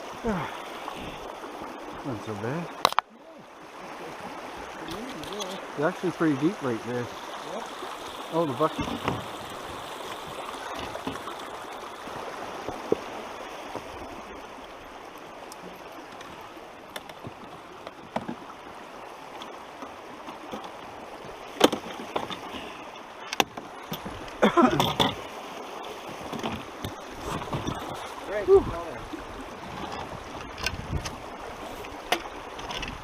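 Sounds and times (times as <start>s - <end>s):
flowing stream water: 0.0s - 33.0s.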